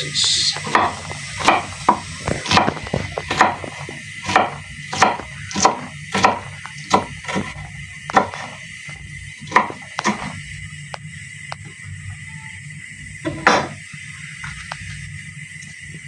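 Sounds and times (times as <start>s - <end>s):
knife chopping on cutting board: 0.6s - 8.6s, 9.4s - 10.4s, 13.3s - 13.8s.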